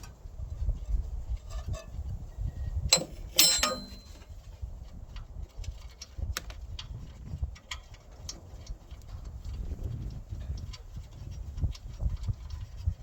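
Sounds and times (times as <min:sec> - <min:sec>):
hand tools clanking on bolts: 0:02.9 - 0:04.3.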